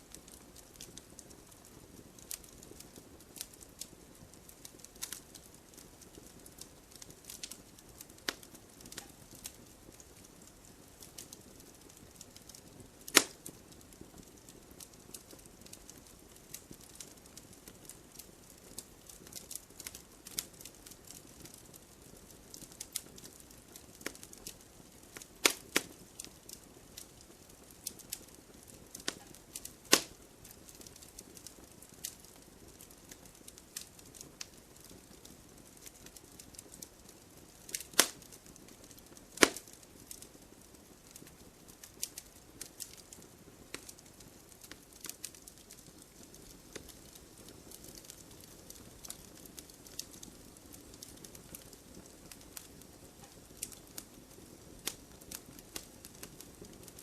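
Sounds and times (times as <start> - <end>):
campfire crackling: 0.0 - 57.0
loud campfire pops: 0.1 - 57.0.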